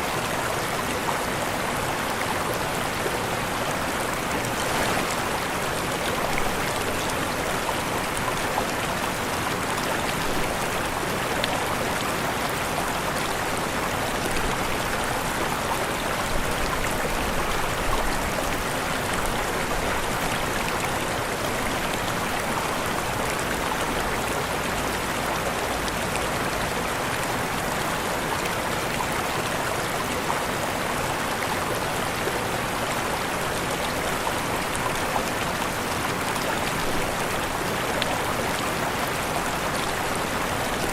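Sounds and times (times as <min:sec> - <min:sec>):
waterfall rushing: 0:00.3 - 0:23.9.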